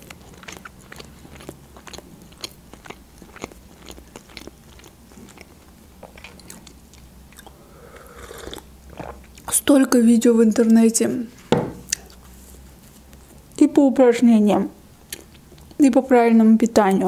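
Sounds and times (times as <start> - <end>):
person chewing: 0.0 - 9.5, 11.8 - 13.6, 15.0 - 15.8.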